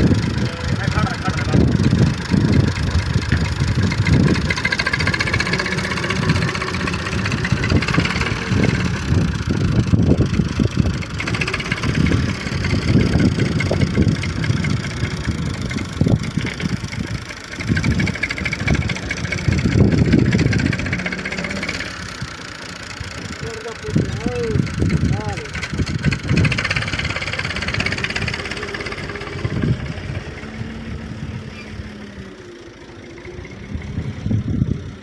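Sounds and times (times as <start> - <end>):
tractor engine running hard: 0.0 - 35.0.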